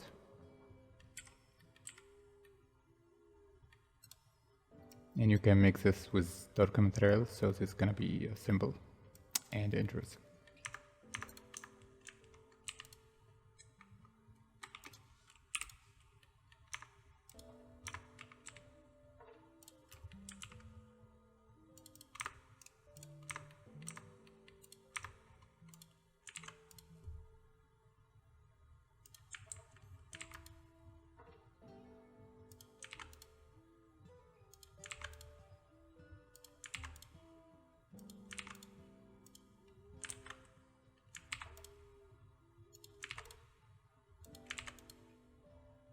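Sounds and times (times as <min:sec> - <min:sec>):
soft background music: 0:00.0 - 0:45.9
keyboard keys tapping: 0:10.3 - 0:27.4, 0:29.0 - 0:31.0, 0:32.1 - 0:33.8, 0:34.4 - 0:37.4, 0:38.0 - 0:43.6, 0:44.2 - 0:45.9.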